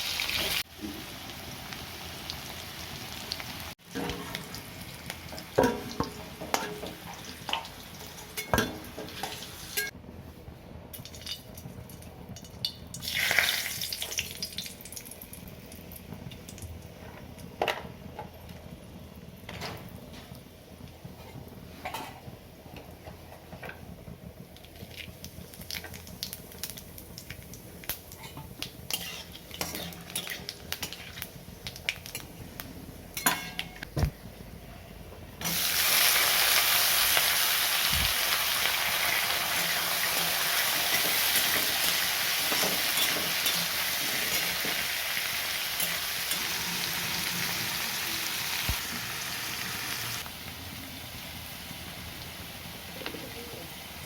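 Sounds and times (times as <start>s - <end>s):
loud frying sizzle: 0.0s - 54.0s
spatula scraping a pan: 28.9s - 31.3s.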